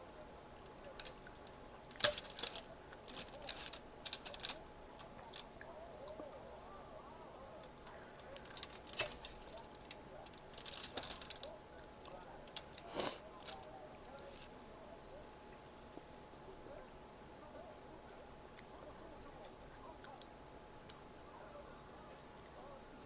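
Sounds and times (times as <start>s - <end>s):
chewing crunchy snacks: 0.7s - 6.2s, 7.6s - 14.5s, 18.0s - 20.3s.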